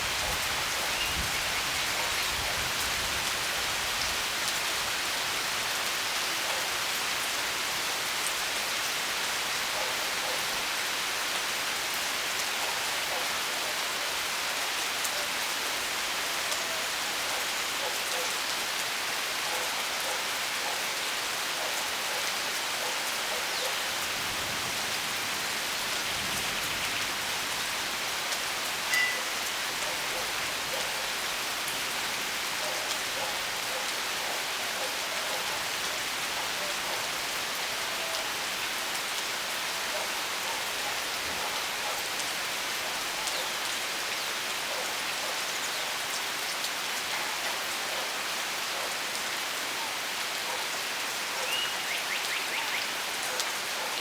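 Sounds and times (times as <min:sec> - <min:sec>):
steady rain falling: 0:00.0 - 0:54.0
brief high note: 0:28.9 - 0:29.3.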